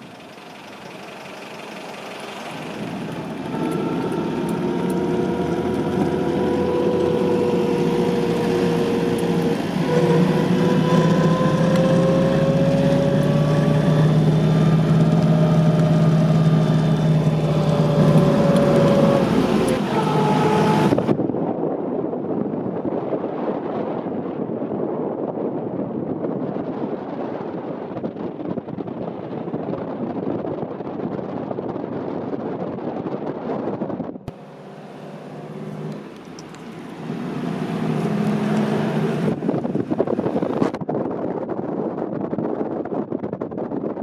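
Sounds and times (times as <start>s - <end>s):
car engine accelerating: 0.0s - 21.4s, 34.1s - 40.8s.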